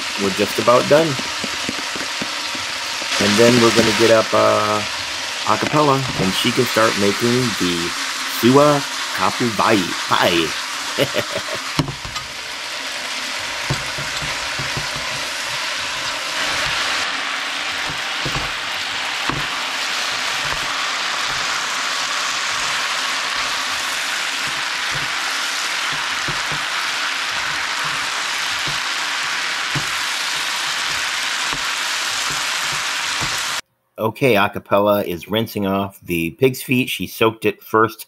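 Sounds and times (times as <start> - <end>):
noodles sizzling in a frying pan: 0.0 - 33.6.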